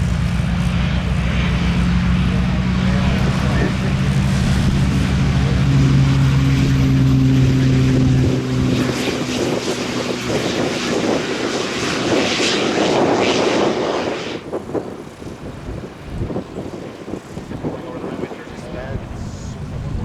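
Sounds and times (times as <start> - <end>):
propeller aircraft engine droning: 0.0 - 20.0.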